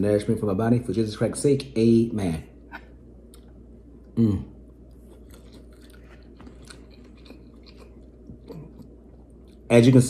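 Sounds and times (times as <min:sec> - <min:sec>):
chewing with wet smacks: 0:04.7 - 0:09.7.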